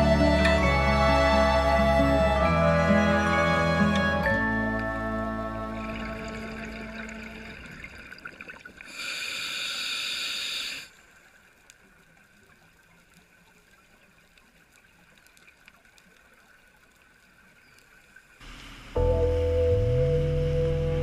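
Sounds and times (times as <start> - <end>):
rush of water: 4.2 - 19.1
faint water hiss: 4.9 - 20.8.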